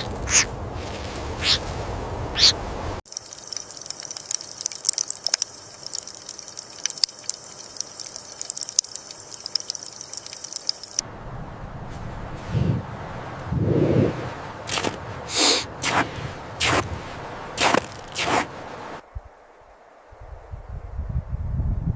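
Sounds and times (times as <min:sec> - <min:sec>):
quick high chirps and ticks: 0:00.0 - 0:00.5, 0:01.4 - 0:01.6, 0:02.4 - 0:11.0
rushing background noise: 0:00.0 - 0:06.0, 0:07.8 - 0:19.0
short sharp high animal calls: 0:01.4 - 0:01.6.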